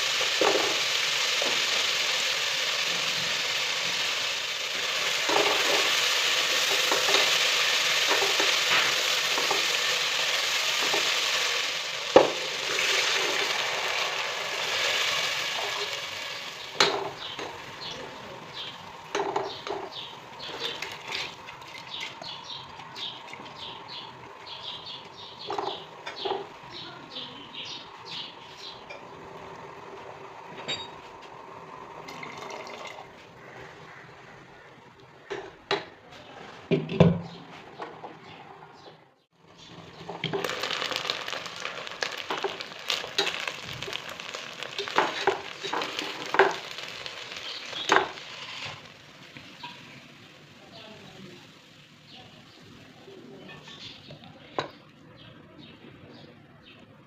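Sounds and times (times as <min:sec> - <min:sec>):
food sizzling in a pan: 0:00.0 - 0:35.8, 0:39.3 - 0:54.8
small birds chirping: 0:14.6 - 0:30.2, 0:37.2 - 0:57.0.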